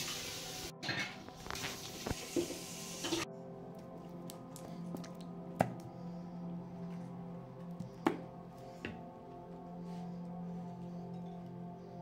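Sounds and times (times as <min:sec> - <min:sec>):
patties sizzling in oil: 0:00.0 - 0:03.2
soft background music: 0:00.0 - 0:12.0.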